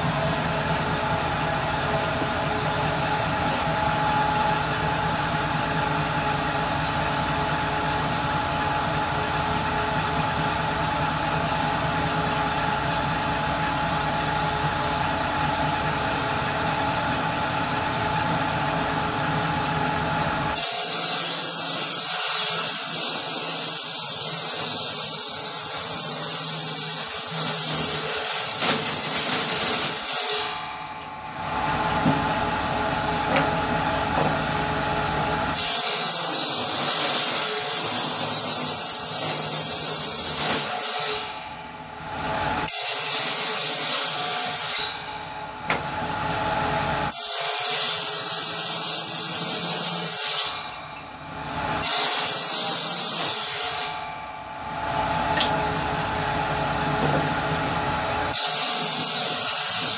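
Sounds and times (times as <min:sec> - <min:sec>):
power saw humming: 0:13.8 - 0:59.9
saw blade cutting wood: 0:20.5 - 0:34.5, 0:35.5 - 0:45.4, 0:47.1 - 0:55.6, 0:58.3 - 0:59.9.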